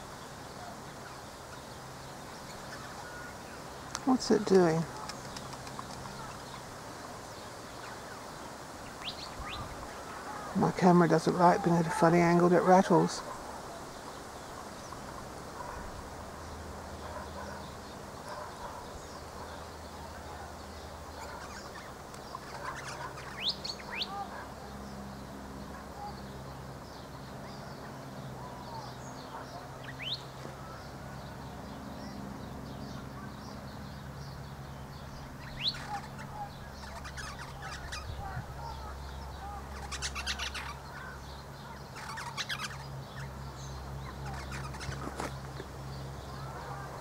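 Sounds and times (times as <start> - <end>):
wind on microphone: 8.6 - 10.6, 37.5 - 39.0
bird chirps: 17.1 - 47.0.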